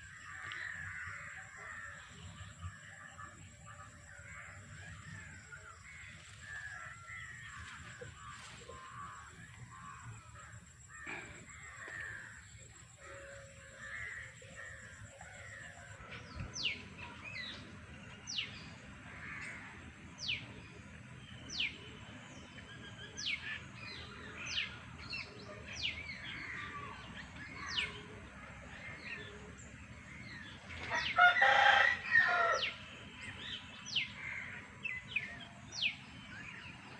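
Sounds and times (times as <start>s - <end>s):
rooster crowing: 30.9s - 32.8s.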